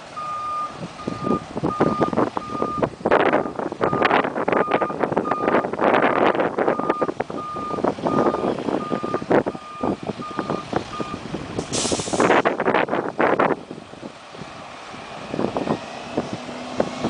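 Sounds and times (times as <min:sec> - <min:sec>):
reversing alarm beeping: 0:00.2 - 0:05.7, 0:06.7 - 0:11.2
short hiss: 0:11.6 - 0:12.4.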